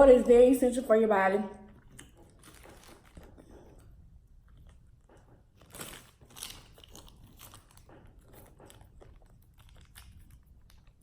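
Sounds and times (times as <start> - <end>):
person chewing food: 1.6 - 11.0
crunchy bites: 5.6 - 11.0.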